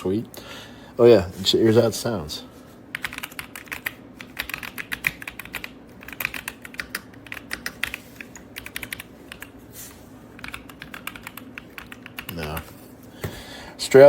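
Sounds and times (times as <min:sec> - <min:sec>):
mechanical keyboard typing: 0:02.9 - 0:09.5, 0:10.4 - 0:12.6.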